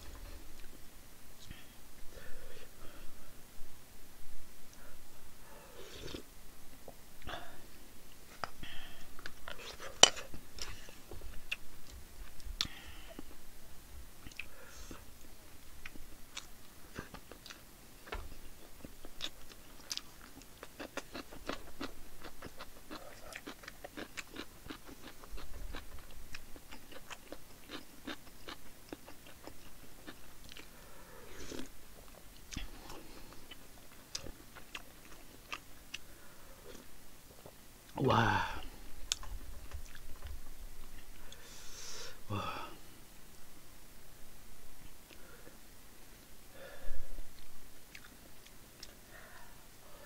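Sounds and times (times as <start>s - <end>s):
person chewing food: 0.0s - 0.8s, 5.6s - 13.4s, 14.2s - 38.0s, 38.6s - 42.1s, 47.3s - 50.0s.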